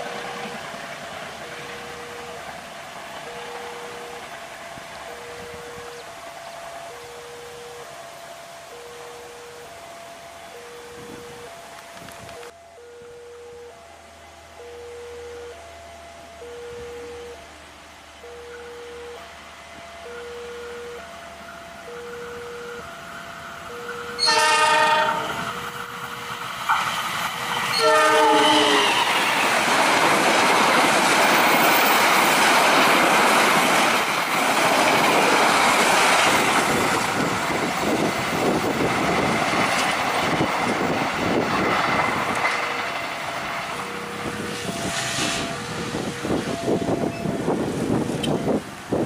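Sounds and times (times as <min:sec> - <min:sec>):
train rushing past: 0:00.0 - 0:12.6, 0:13.8 - 0:49.0
wheels clattering over rail joints: 0:23.0 - 0:49.0
locomotive horn blasts: 0:23.9 - 0:25.8, 0:27.7 - 0:29.2.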